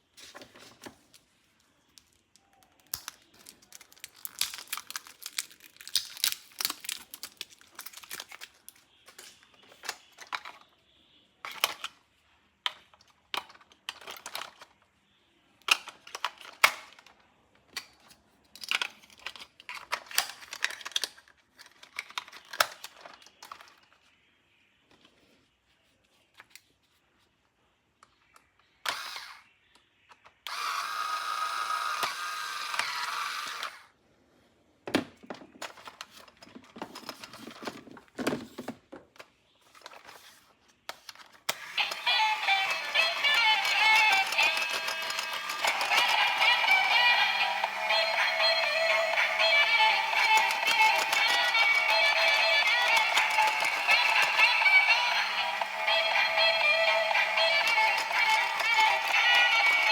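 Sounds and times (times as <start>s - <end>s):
plastic packaging crinkling: 1.9s - 9.0s, 41.3s - 59.9s.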